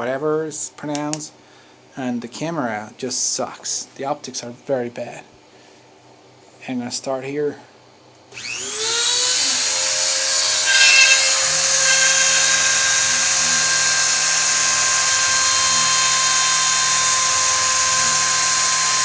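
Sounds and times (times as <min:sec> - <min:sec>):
spindle motor whining: 0:10.3 - 0:17.8.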